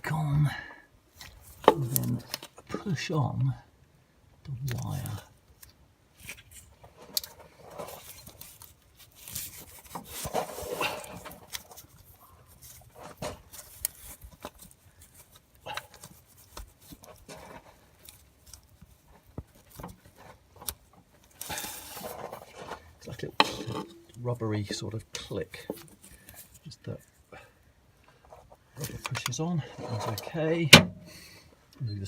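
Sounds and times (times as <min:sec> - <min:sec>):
rubber rubbing and scraping: 0:07.5 - 0:11.9.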